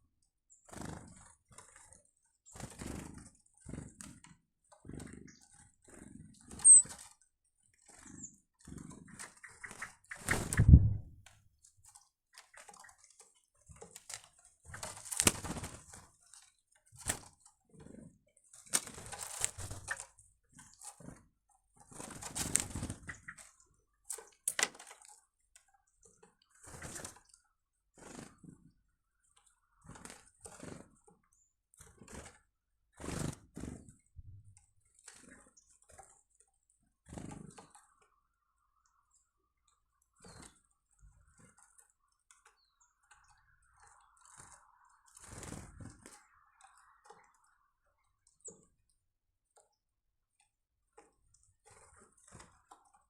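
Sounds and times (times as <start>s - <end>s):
birds rustling and tapping: 0.7s - 28.8s, 29.4s - 32.4s, 38.9s - 47.6s, 50.9s - 53.0s.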